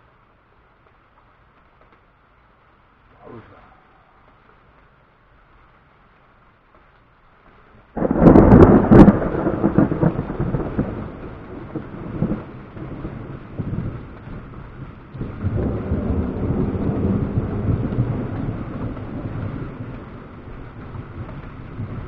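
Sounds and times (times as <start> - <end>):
thunder crack and rumbling: 7.9 - 22.0.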